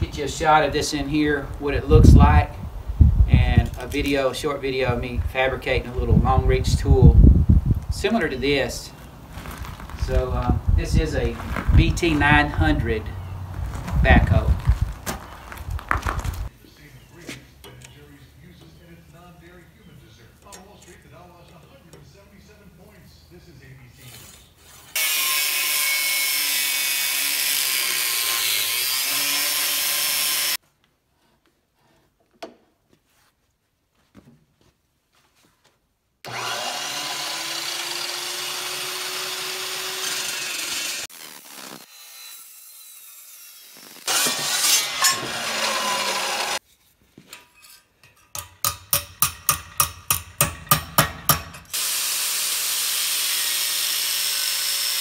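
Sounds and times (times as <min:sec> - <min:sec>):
power tools cutting steel: 0:24.0 - 0:30.6, 0:36.3 - 0:46.6, 0:48.4 - 0:55.0
sharp metal strikes: 0:48.2 - 0:51.8.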